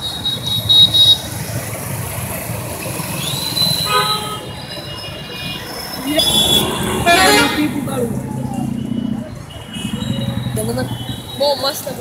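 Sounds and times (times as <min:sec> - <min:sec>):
bus engine rumbling: 0:00.0 - 0:12.0.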